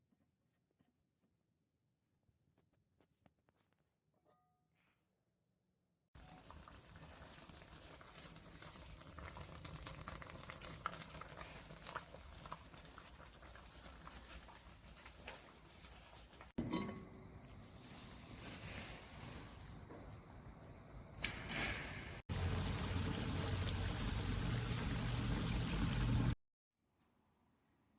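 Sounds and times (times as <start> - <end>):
food bubbling and crackling: 6.2 - 16.6, 22.3 - 26.4.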